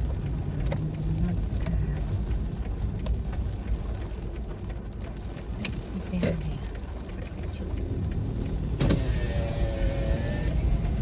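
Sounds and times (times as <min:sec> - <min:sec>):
faint clicks: 0:00.0 - 0:08.8
car engine rumble inside cabin: 0:00.0 - 0:11.0.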